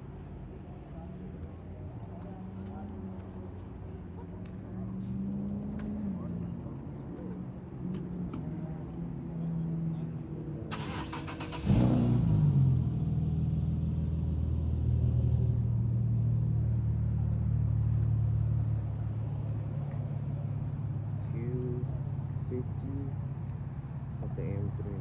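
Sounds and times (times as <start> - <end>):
car starter cranking: 10.7 - 12.5
car engine idling: 10.7 - 18.5.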